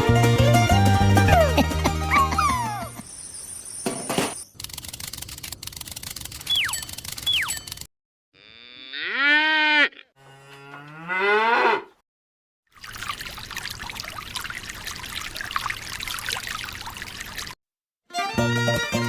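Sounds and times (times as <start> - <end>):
cow mooing: 8.4 - 12.0
water pouring: 12.7 - 17.6.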